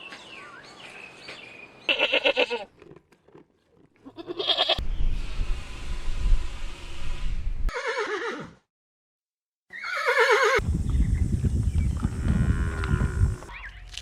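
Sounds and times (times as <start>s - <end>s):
horse whinnying: 4.0s - 4.8s, 7.7s - 8.6s, 9.7s - 10.6s.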